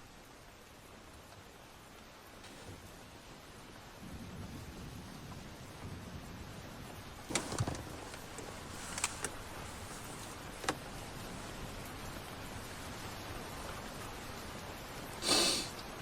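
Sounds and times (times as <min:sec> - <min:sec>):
heavy rain: 0:00.0 - 0:16.0
sharp knocks and clicks: 0:07.3 - 0:10.8.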